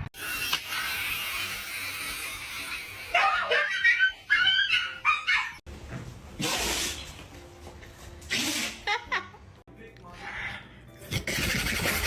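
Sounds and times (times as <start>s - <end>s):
dog whining yelps: 3.0s - 5.6s.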